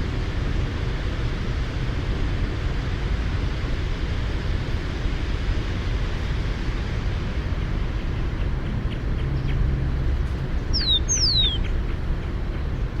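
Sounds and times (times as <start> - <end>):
low background rumble and hiss: 0.0 - 13.0.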